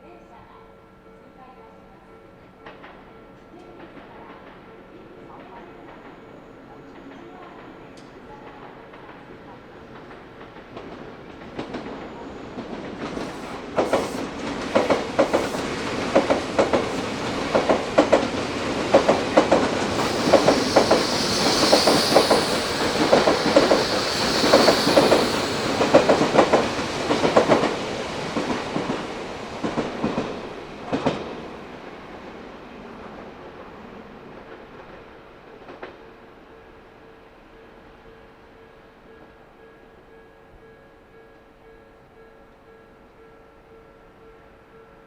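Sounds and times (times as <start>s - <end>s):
electric train passing: 3.8s - 32.6s
wheels clacking over rail joints: 12.9s - 28.9s.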